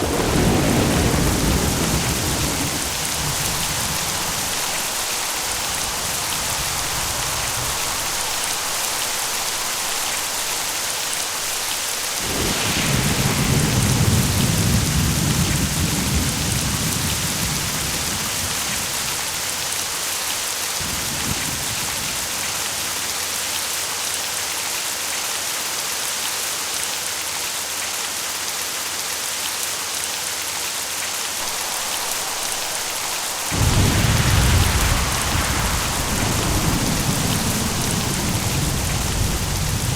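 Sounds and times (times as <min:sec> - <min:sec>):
rolling thunder: 0:00.0 - 0:22.8, 0:31.4 - 0:39.9
steady rain: 0:00.0 - 0:39.9.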